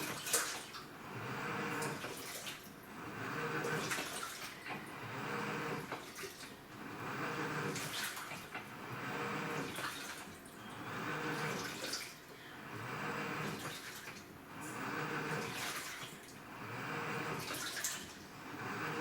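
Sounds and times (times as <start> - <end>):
water sloshing in washing machine: 0.0 - 19.0
low motor hum: 2.8 - 6.0, 8.6 - 9.7, 10.5 - 13.7, 14.3 - 15.6, 16.3 - 19.0.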